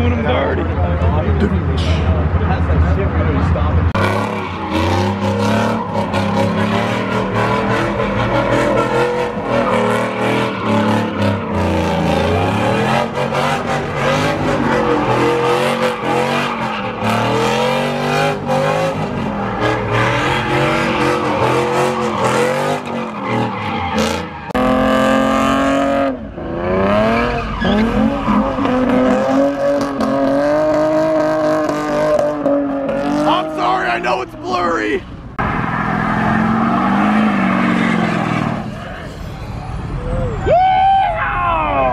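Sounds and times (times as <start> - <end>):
car engines revving: 0.0 - 41.9
tyre squeal: 27.1 - 28.8.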